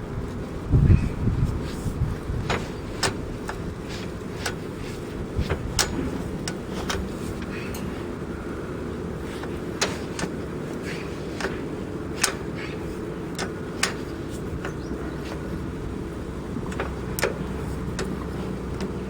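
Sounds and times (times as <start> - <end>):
tractor engine running: 0.0 - 19.0
sharp clicks and knocks: 2.4 - 8.0, 9.3 - 19.0.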